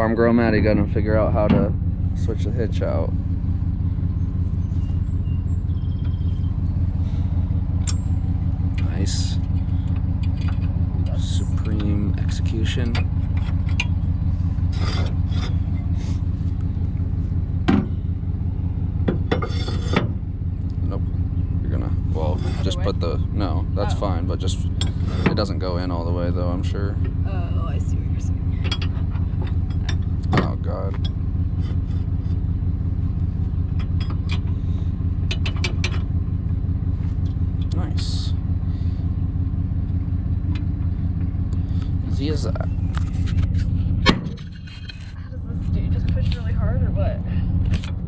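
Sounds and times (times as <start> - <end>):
vehicle engine idling: 0.0 - 48.0
steel trailer hitch rattling: 0.7 - 23.3, 24.5 - 26.2, 26.9 - 37.8
sharp metal clank: 7.8 - 8.4.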